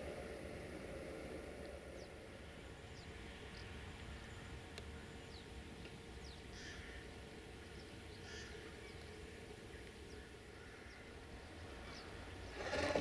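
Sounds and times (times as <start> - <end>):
distant low rumble: 0.0 - 13.0
harsh bird calls: 6.2 - 13.0.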